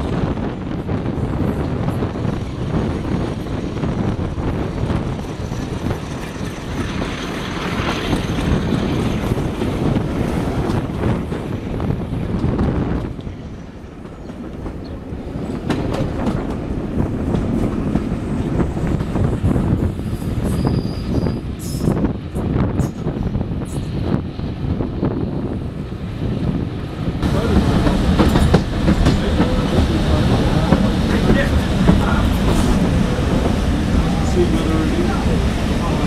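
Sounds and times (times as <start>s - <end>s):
train wheel and track rumble: 0.0s - 36.0s
wind rush: 0.0s - 36.0s
high wheel squeal: 20.4s - 21.9s.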